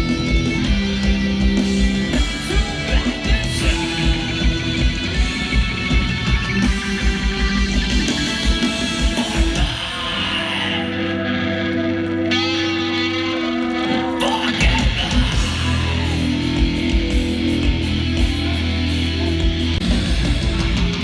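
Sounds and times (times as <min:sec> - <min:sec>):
distorted electric guitar: 0:00.0 - 0:21.0
drums: 0:00.0 - 0:21.0.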